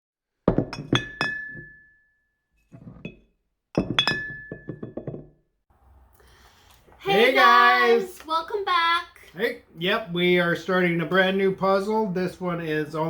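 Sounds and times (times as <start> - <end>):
glassy clinks: 0.7 - 2.1, 3.8 - 5.2.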